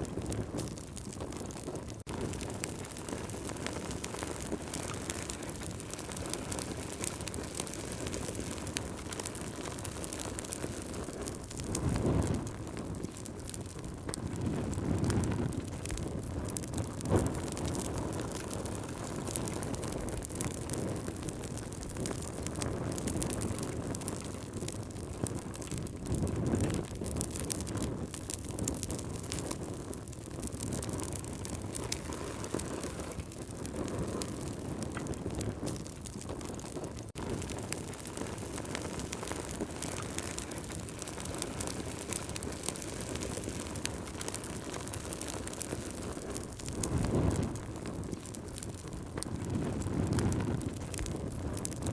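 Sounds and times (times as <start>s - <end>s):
campfire crackling and popping: 0.0s - 51.9s.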